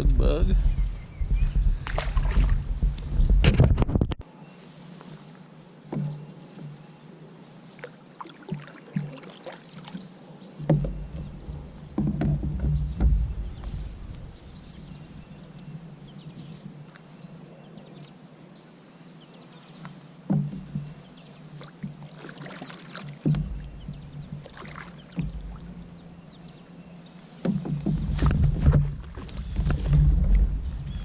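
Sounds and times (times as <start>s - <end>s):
knocks on a kayak hull: 10.6s - 13.8s, 20.3s - 20.9s, 23.2s - 25.6s, 27.4s - 29.0s.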